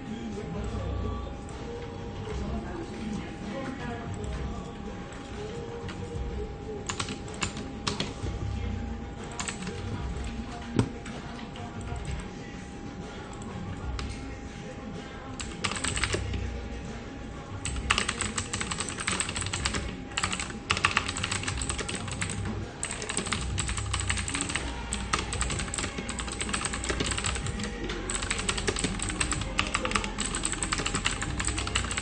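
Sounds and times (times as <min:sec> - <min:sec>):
low background hum: 0:00.0 - 0:32.0
fast typing on keyboard: 0:06.9 - 0:08.2, 0:09.2 - 0:10.9, 0:15.4 - 0:16.4, 0:17.6 - 0:32.0.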